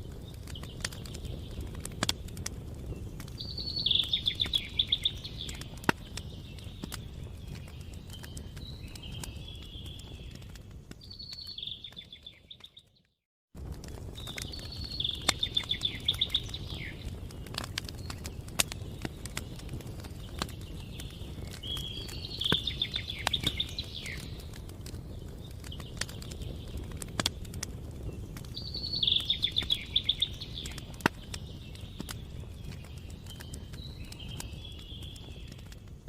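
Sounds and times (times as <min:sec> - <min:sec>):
campfire crackling and popping: 0:00.0 - 0:36.0
songbird singing trilled phrase: 0:03.4 - 0:05.8, 0:14.4 - 0:17.0, 0:20.9 - 0:24.4, 0:28.6 - 0:32.0.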